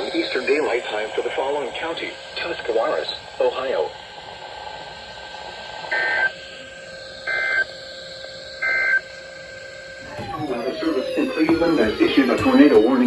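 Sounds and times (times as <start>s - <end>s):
radio hiss: 0.0s - 4.6s, 10.0s - 13.0s.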